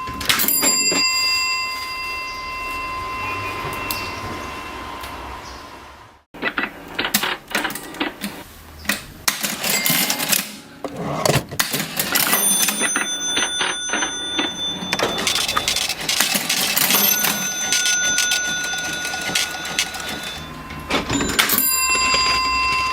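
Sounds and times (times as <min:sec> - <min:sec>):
cash register ringing tone: 0:00.0 - 0:04.8, 0:09.4 - 0:22.9
cash register keys clacking: 0:09.3 - 0:22.9.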